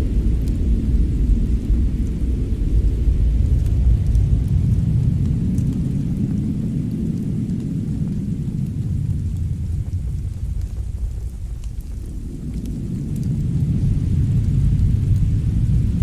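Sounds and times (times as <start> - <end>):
burning wood crackles: 0.0 - 16.0
deep steady rumble: 0.0 - 16.0.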